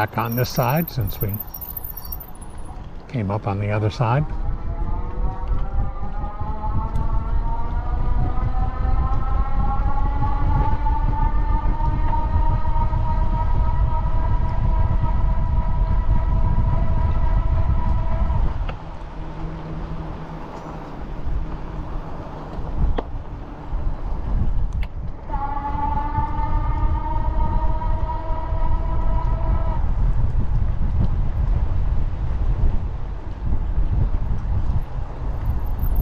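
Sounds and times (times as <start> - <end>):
wind rumble on microphone: 0.0 - 36.0
motorbike whine rising: 25.2 - 30.1.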